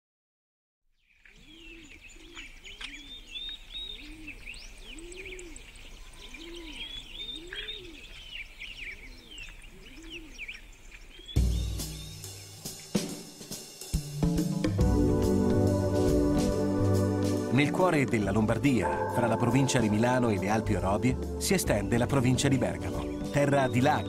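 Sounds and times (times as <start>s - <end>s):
high bird chirps and trills: 1.0s - 13.0s, 21.8s - 24.0s
lower arched bird call: 1.4s - 13.3s.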